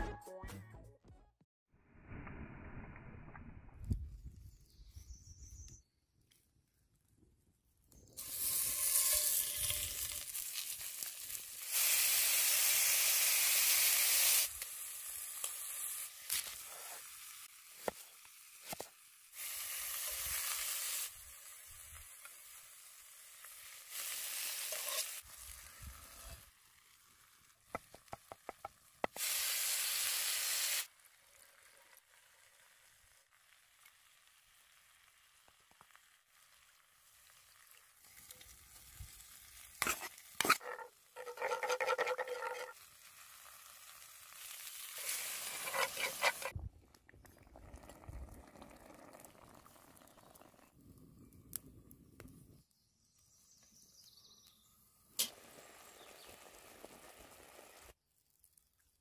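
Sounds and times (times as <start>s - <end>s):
food frying and sizzling: 8.2s - 46.6s, 55.2s - 58.0s.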